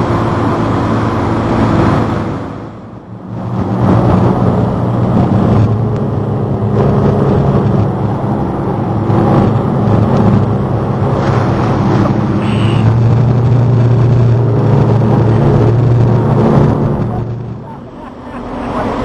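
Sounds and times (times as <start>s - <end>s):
boat engine humming: 0.0s - 19.0s
rushing water noise: 8.3s - 19.0s.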